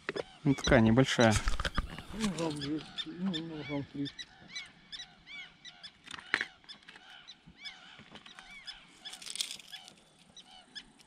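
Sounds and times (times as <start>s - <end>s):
bird calling: 0.0s - 11.0s
brief rustle: 8.1s - 10.3s.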